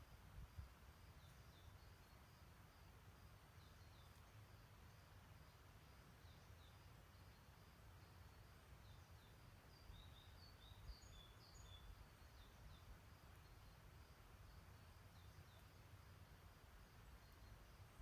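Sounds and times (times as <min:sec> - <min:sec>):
soft background hiss: 0:00.0 - 0:18.0
small birds chirping: 0:00.9 - 0:18.0.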